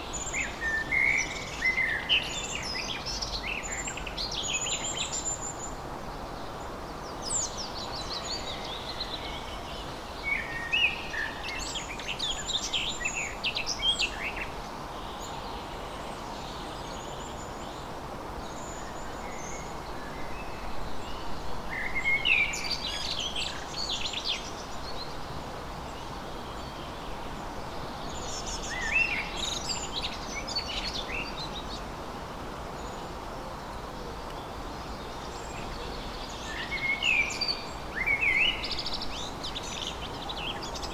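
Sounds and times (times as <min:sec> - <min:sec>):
steady background hiss: 0:00.0 - 0:40.9
songbirds chirping and trilling: 0:26.0 - 0:40.9.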